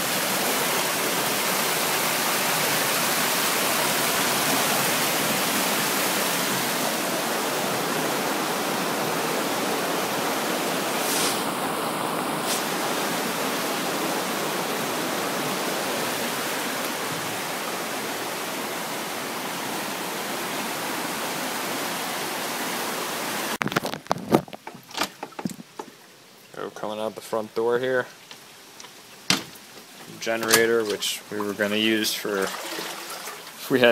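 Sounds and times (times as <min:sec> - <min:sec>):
floodwater rushing: 0:00.0 - 0:23.6, 0:24.7 - 0:33.9
sharp knocks: 0:29.2 - 0:30.6.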